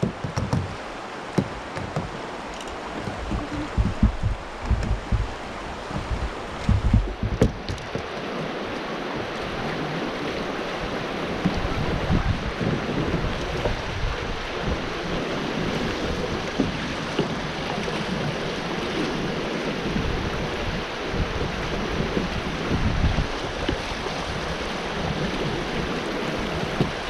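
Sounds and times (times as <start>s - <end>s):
rushing whitewater: 0.0s - 27.0s
wind rumbling on microphone: 0.0s - 27.0s
brief thumps: 3.0s - 7.8s.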